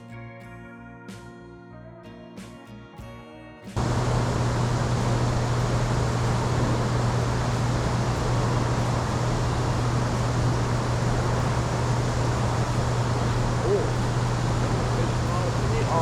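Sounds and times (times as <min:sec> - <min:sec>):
music: 0:00.0 - 0:03.8
boat motor running: 0:03.8 - 0:16.0
wind and water rushing: 0:03.8 - 0:16.0.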